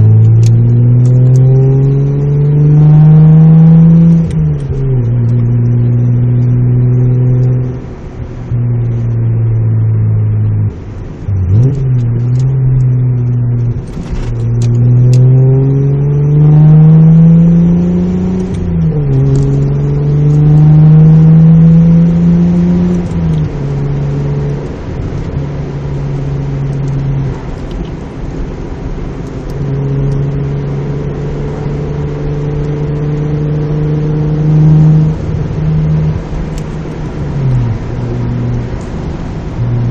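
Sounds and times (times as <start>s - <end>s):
car exhaust accelerating: 0.0s - 39.9s.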